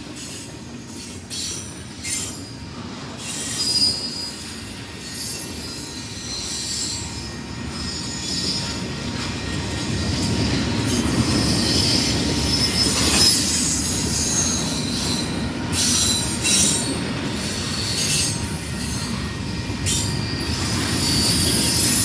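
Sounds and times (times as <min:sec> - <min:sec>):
train wheels squealing: 0:00.0 - 0:22.0.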